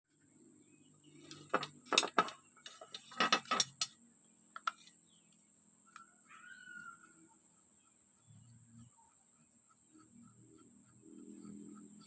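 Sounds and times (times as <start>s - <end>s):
faint low hum: 0.1s - 12.0s
metal parts and tools clinking: 1.2s - 3.9s.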